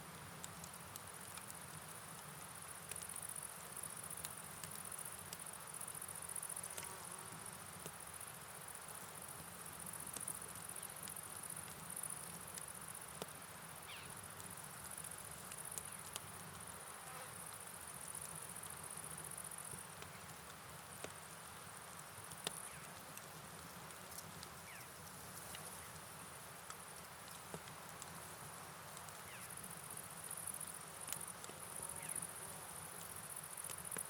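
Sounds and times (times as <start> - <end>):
light ticks: 0.4 - 6.0, 22.0 - 28.3, 28.9 - 32.2, 33.0 - 34.0
insect trill: 13.8 - 14.3, 29.2 - 34.0.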